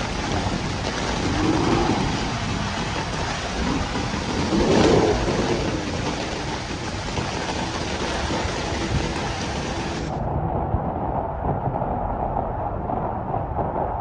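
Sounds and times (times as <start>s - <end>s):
heavy rain: 0.0s - 12.9s.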